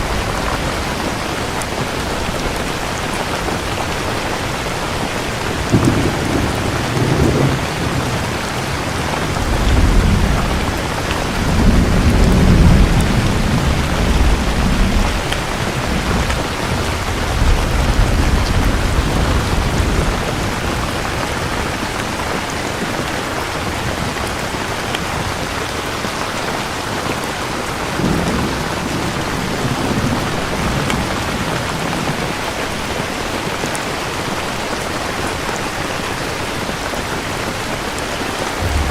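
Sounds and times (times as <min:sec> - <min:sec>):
thunder rumbling: 0:00.0 - 0:23.0, 0:37.9 - 0:38.9
heavy rain: 0:00.0 - 0:38.9.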